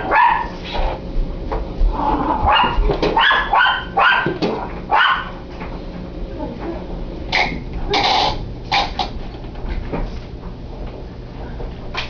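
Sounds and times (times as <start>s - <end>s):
dog barking: 0.0s - 0.6s, 2.5s - 5.4s.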